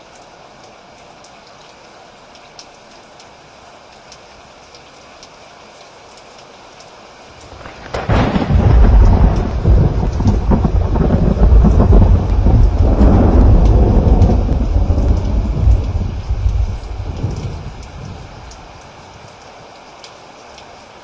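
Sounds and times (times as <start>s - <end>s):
steady rain: 0.0s - 21.0s
thunder rumbling: 7.5s - 19.2s.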